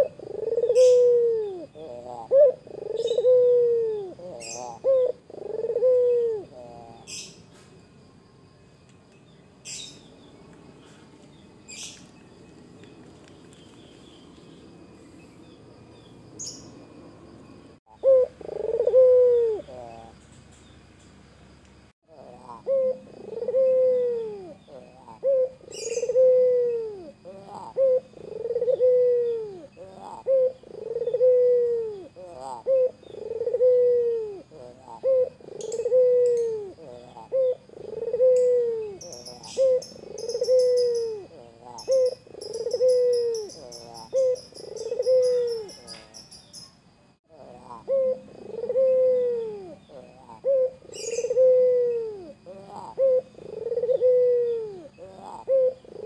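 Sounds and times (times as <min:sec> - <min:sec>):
dove cooing: 0:00.0 - 0:07.4, 0:17.9 - 0:20.2, 0:22.1 - 0:46.0, 0:47.3 - 0:56.0.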